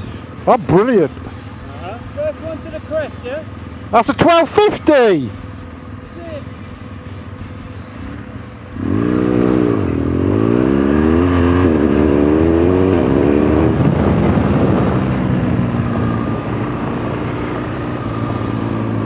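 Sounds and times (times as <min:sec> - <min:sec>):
motorcycle engine accelerating: 0:05.4 - 0:19.0.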